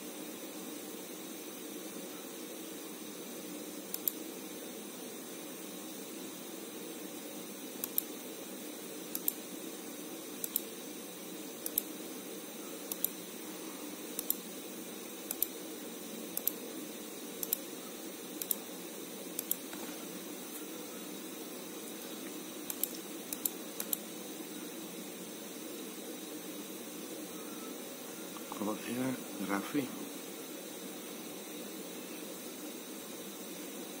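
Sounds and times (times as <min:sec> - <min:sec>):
electrical hum and hiss: 0:00.0 - 0:34.0.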